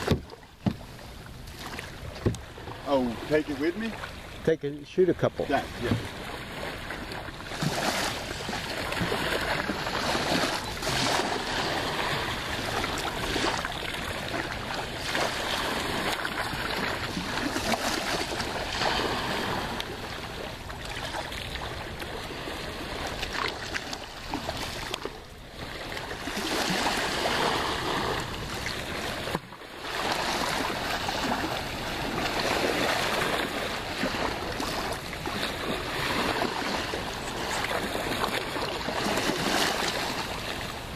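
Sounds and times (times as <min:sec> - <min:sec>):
small waves washing: 0:00.0 - 0:40.9.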